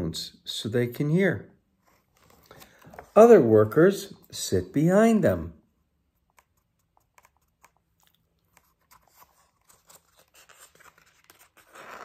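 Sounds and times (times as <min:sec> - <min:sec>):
faint small clicks and rustles: 0:06.2 - 0:11.6.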